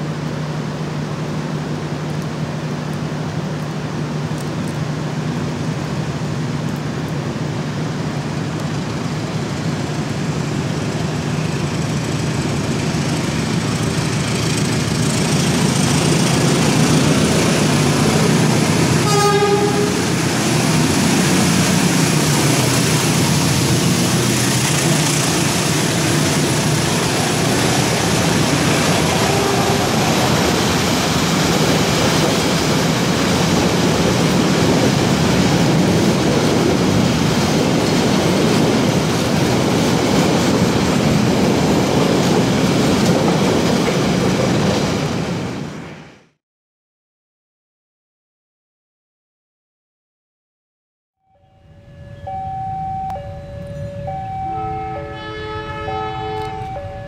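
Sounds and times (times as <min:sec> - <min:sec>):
diesel passenger train passing: 0:00.0 - 0:46.2, 0:51.6 - 0:57.0
locomotive horn toot: 0:19.0 - 0:20.1, 0:29.0 - 0:30.2, 0:53.0 - 0:57.0.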